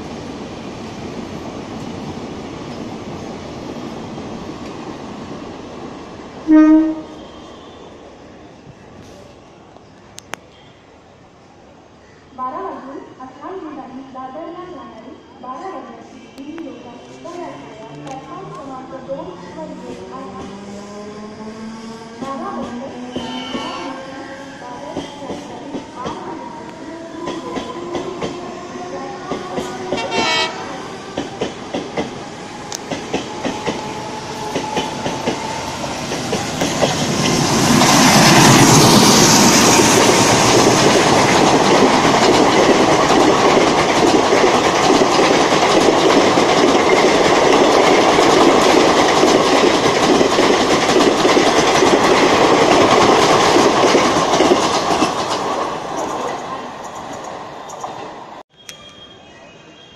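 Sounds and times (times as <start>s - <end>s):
multi-note train horn: 6.5s - 7.9s, 29.9s - 30.8s
train coaches clattering past: 16.3s - 59.2s.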